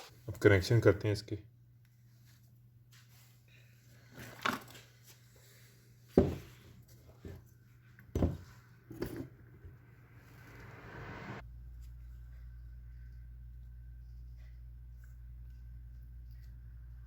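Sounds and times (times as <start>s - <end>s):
steady low hum: 7.4s - 17.0s.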